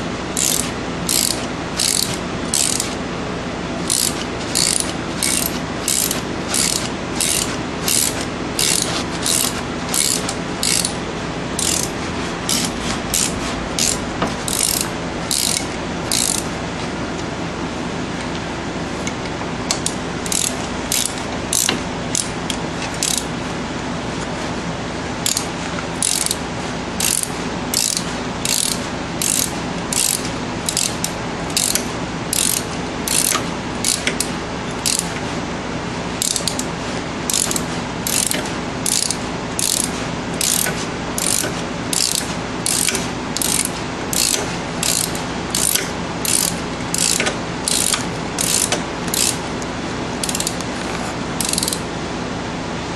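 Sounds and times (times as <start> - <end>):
hand ratchet clicking: 0.4 - 3.0, 3.8 - 11.0, 11.6 - 16.5, 19.7 - 23.3, 25.2 - 26.4, 27.0 - 35.2, 36.2 - 36.7, 37.3 - 49.4, 50.2 - 50.7, 51.4 - 51.8.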